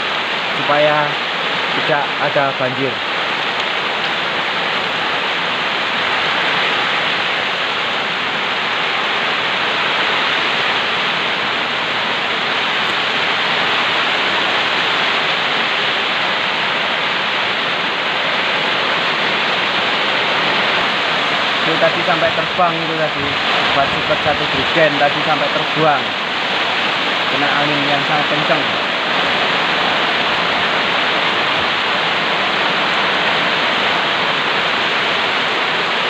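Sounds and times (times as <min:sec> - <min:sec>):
heavy rain hissing: 0:00.0 - 0:36.0.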